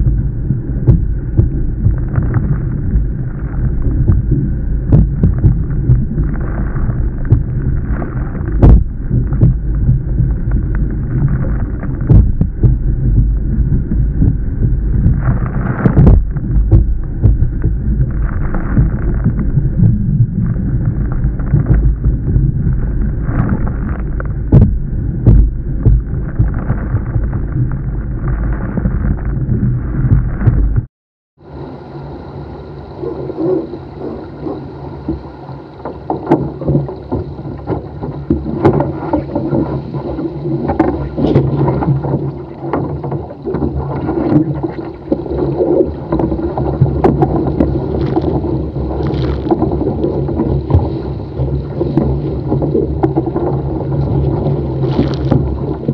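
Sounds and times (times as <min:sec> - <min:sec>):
wind buffeting microphone: 0:00.0 - 0:30.9, 0:31.5 - 0:55.9
water splashing against hull: 0:00.0 - 0:55.9.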